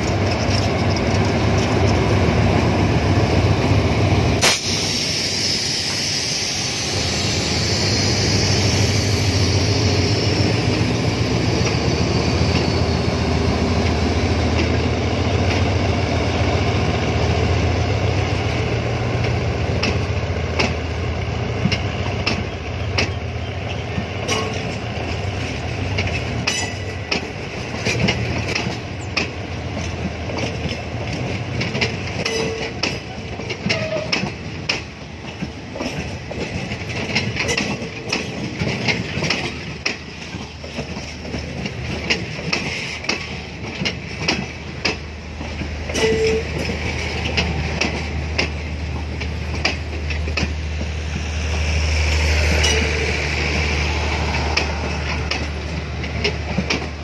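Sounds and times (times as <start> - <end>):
wheels clicking over rail joints: 0.0 - 2.6, 19.2 - 20.8, 21.6 - 51.0, 54.2 - 57.0
locomotive engine drone: 0.0 - 57.0
high hiss: 4.4 - 11.6.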